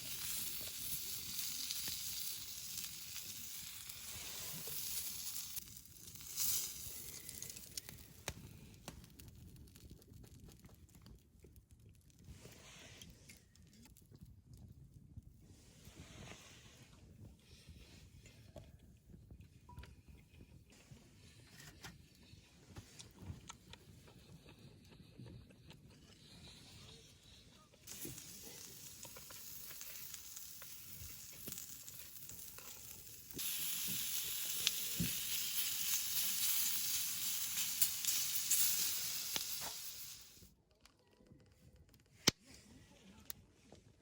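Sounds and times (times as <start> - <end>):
meat sizzling: 0.0 - 8.7, 27.9 - 40.5.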